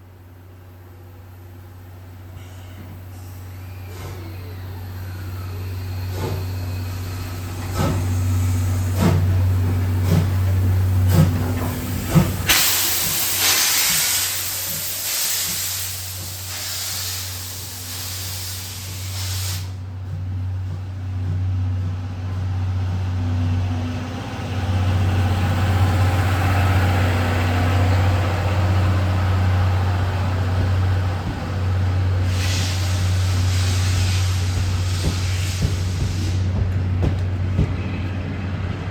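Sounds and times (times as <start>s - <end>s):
steam locomotive chuffing: 2.0s - 38.9s
loud hiss of steam: 2.3s - 19.8s, 28.9s - 36.8s.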